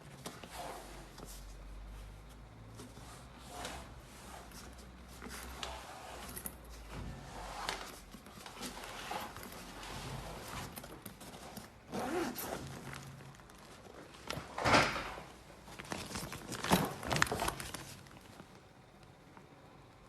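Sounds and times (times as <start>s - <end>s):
bag handling: 4.5s - 18.6s
zipper on a backpack: 7.3s - 13.2s.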